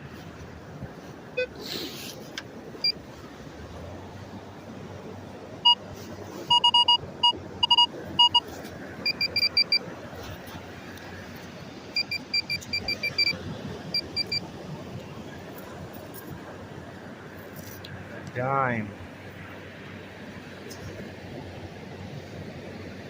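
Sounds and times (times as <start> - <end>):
metal detector beeping: 6.5 - 8.4, 9.0 - 9.8, 12.0 - 14.4.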